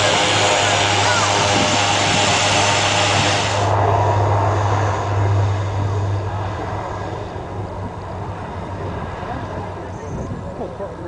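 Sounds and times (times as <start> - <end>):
low propeller drone: 0.0 - 11.0
rushing aircraft engine noise: 0.0 - 11.0.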